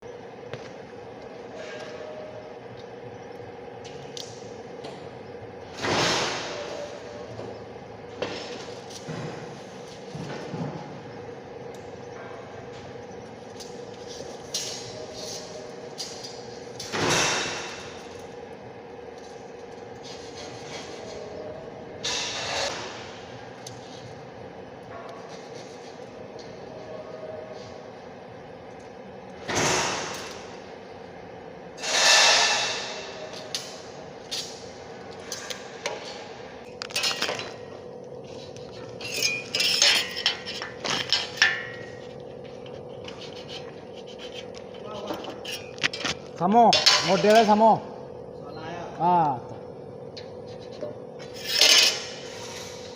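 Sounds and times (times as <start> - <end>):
metal clanks: 38.8 - 42.0
metal parts clinking: 38.9 - 41.7.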